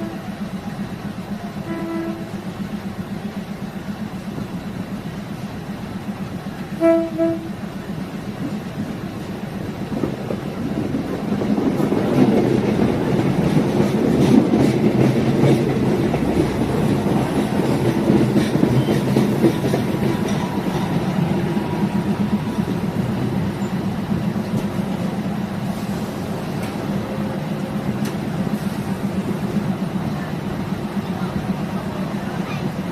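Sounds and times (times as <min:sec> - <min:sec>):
train rumbling along track: 0:00.0 - 0:32.9
wheels clicking over rail joints: 0:08.3 - 0:25.2.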